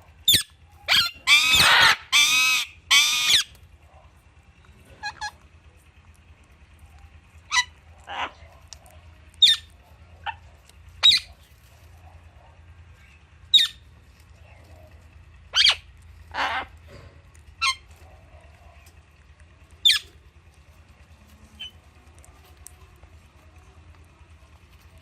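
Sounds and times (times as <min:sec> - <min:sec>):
parakeets calling: 0:00.2 - 0:03.6, 0:04.9 - 0:05.4, 0:07.5 - 0:08.6, 0:09.4 - 0:10.4, 0:11.0 - 0:11.5, 0:13.0 - 0:13.9, 0:15.5 - 0:16.8, 0:17.6 - 0:18.2, 0:19.8 - 0:20.2.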